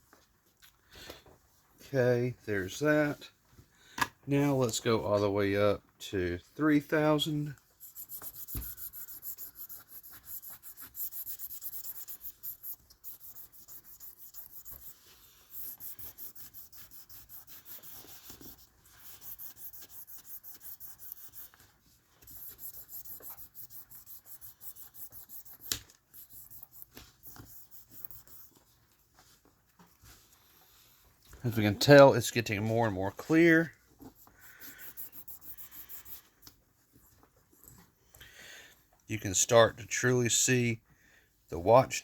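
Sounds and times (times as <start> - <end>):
sandpaper rubbing on plastic: 7.2 - 28.6, 31.4 - 36.4.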